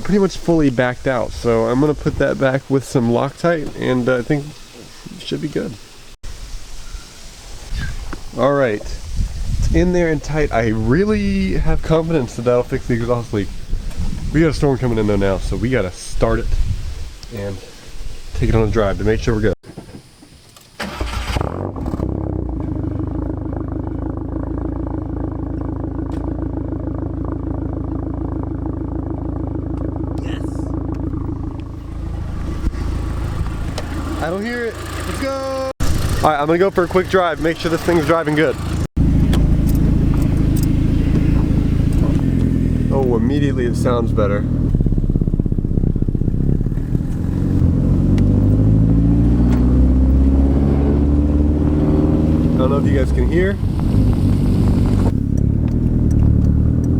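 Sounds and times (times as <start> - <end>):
car engine starting and idling: 20.6 - 56.9.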